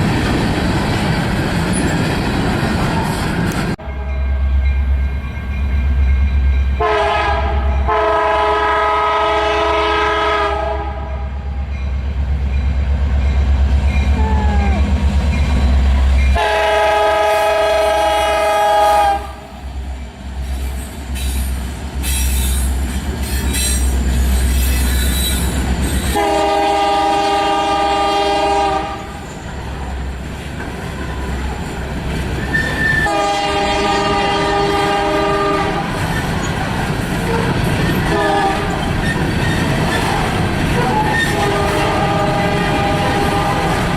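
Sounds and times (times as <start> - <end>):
wheels clattering on rail joints: 0.0 - 3.8, 35.4 - 43.9
freight train rumbling: 0.0 - 43.9
locomotive horn blasts: 6.8 - 11.4, 16.4 - 19.6, 26.1 - 29.2, 32.6 - 35.9, 37.3 - 38.8, 40.8 - 43.9.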